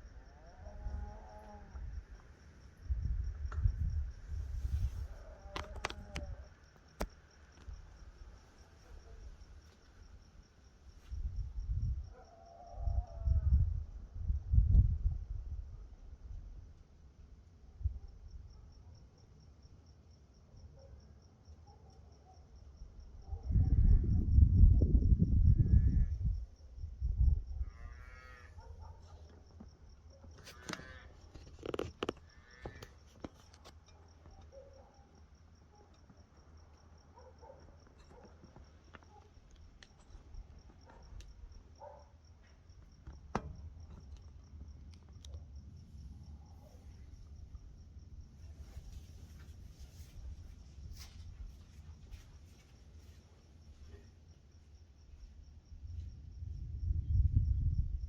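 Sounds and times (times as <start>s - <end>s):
crickets chirping: 0.0s - 58.0s
faint animal calls: 12.1s - 13.5s, 27.6s - 29.3s, 30.1s - 31.4s
pulsing insect trill: 27.5s - 28.6s
low thunder rumble: 56.2s - 58.0s.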